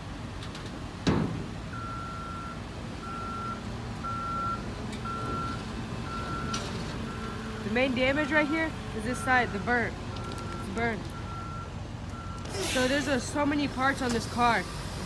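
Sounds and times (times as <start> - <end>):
loud thump: 1.0 - 1.5
reversing alarm beeping: 1.7 - 7.4, 8.1 - 12.6.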